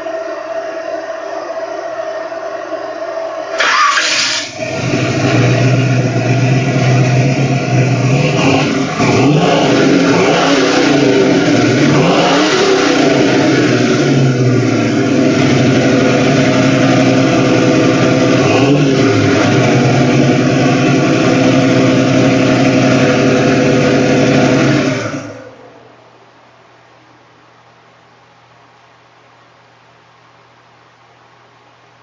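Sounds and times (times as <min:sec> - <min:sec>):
loud car engine running: 0:03.5 - 0:25.6.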